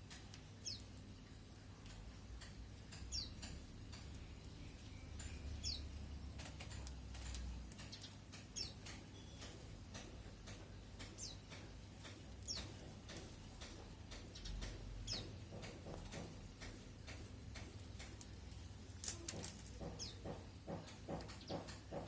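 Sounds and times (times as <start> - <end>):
fast taps: 19.1 - 22.0.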